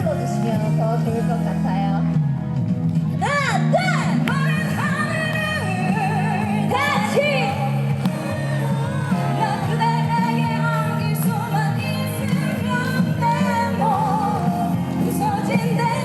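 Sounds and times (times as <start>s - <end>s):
bass notes: 0.0s - 16.0s
live pop-rock band: 0.0s - 16.0s
lead vocal singing: 3.2s - 16.0s.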